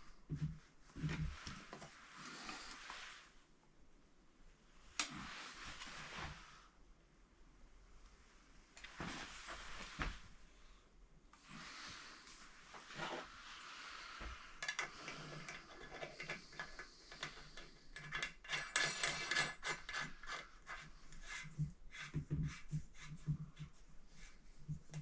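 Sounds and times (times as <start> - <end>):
tools rubbing and scraping: 14.4 - 25.0.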